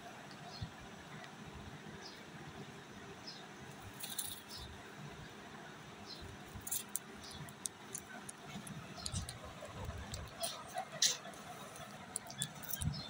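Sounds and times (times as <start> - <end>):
parrot clicks and squeaks: 6.7 - 13.0.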